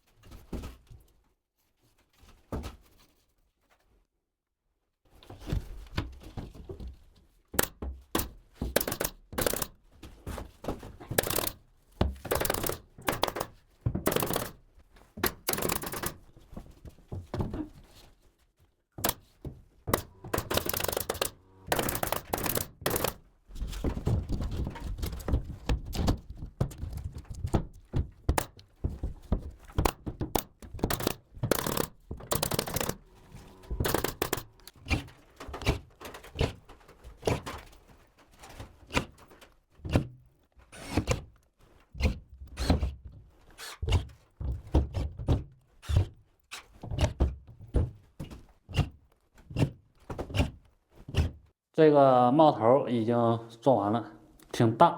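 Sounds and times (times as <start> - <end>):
sharp knocks and thuds on wood: 5.4 - 17.9, 19.0 - 36.6, 43.8 - 46.2, 46.8 - 51.4.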